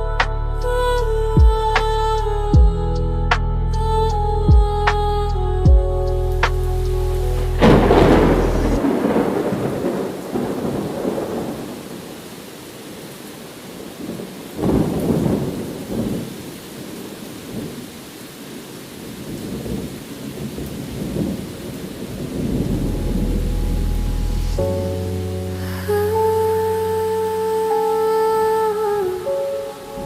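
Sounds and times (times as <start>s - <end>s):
thunder rumbling: 3.8s - 12.3s, 14.0s - 17.8s, 19.2s - 27.1s
rain falling: 3.8s - 30.0s.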